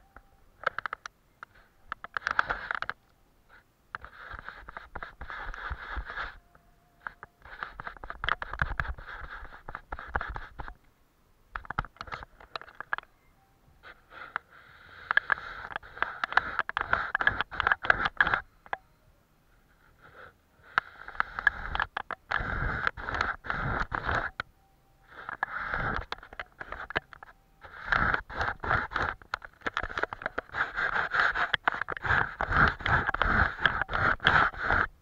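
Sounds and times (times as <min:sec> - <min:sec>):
paintbrush scratching on paper: 0:03.5 - 0:10.8, 0:13.8 - 0:18.5, 0:19.6 - 0:24.4, 0:25.0 - 0:35.0.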